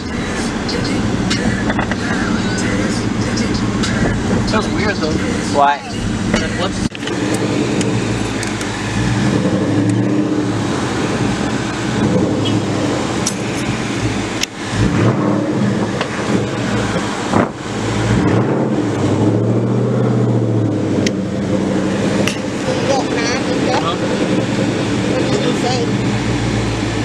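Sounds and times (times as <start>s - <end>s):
car engine running at low revs: 0.0s - 27.0s.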